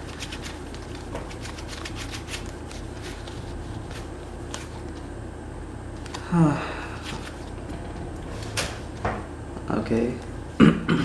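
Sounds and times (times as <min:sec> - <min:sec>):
low hum: 0:03.1 - 0:11.0.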